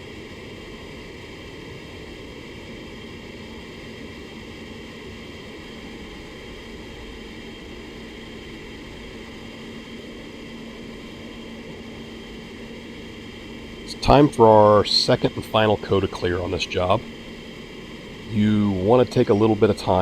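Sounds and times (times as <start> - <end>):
constant low hum: 0.0 - 20.0
ventilation air rushing: 5.4 - 20.0.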